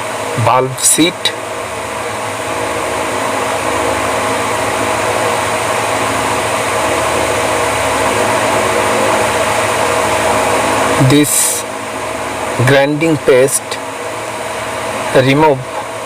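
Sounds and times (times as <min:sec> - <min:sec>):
engine low hum: 0:00.0 - 0:16.0
machinery hiss: 0:07.5 - 0:11.7.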